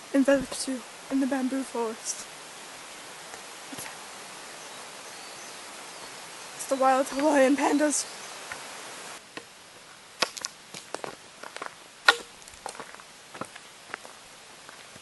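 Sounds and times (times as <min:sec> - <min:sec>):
bamboo stalks knocking together: 0:10.2 - 0:13.0.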